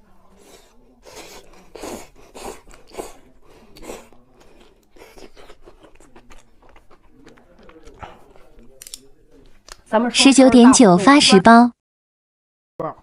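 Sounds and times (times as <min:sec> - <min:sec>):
person chewing crunchy food: 0:00.4 - 0:08.8.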